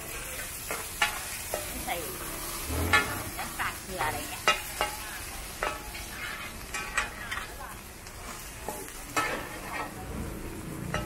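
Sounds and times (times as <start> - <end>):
spatula clacking on pan: 0.0 - 2.0, 4.0 - 7.6, 8.6 - 10.0
egg sizzling in oil: 0.0 - 11.0
metal spatulas scraping pan: 0.0 - 11.0.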